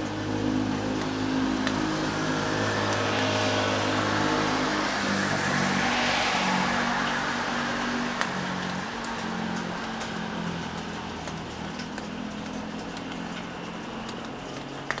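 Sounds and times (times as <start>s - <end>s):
steady rain: 0.0s - 15.0s
tyre hiss on wet road: 0.9s - 9.3s.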